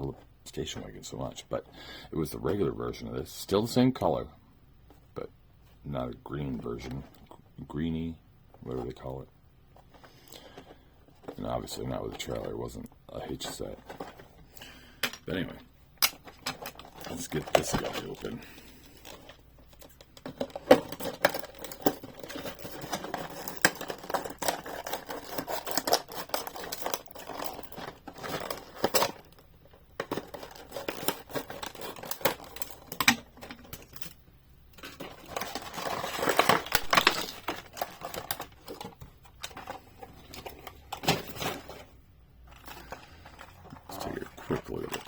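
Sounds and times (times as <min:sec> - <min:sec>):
plastic packaging crinkling and tearing: 0:16.3 - 0:34.0, 0:34.8 - 0:41.9, 0:42.5 - 0:45.0.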